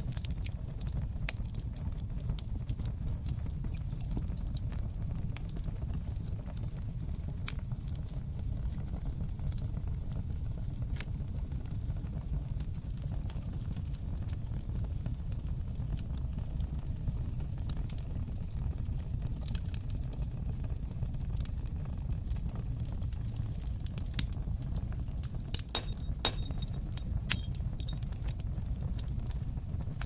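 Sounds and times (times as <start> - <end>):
fire crackling: 0.0 - 30.0
low rumble of flames: 0.0 - 30.0.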